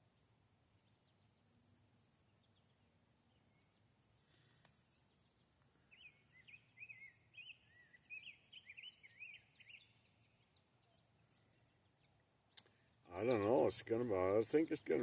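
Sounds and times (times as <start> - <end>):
songbird warbling: 5.9 - 15.0.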